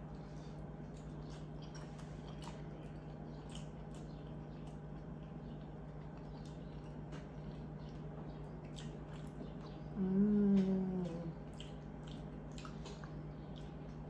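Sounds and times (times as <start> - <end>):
closed-mouth hum: 0.0 - 14.0
person chewing soft food: 0.0 - 14.0
wet mouth clicks: 10.4 - 13.8.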